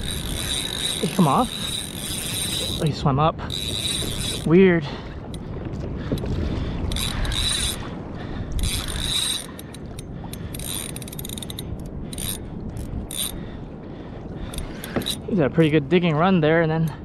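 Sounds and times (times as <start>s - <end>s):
fishing reel whirring and clicking: 0.0s - 4.6s, 6.9s - 7.9s, 8.5s - 13.4s, 14.5s - 15.3s.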